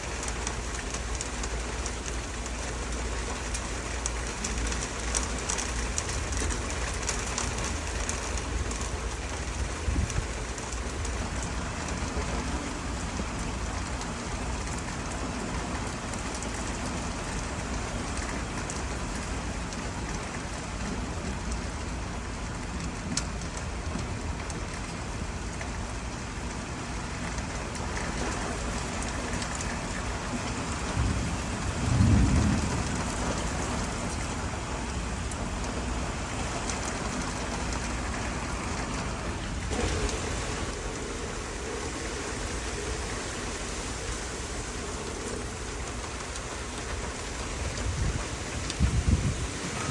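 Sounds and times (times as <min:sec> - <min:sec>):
steady rain falling: 0:00.0 - 0:49.9
low rumble of thunder: 0:27.7 - 0:49.9.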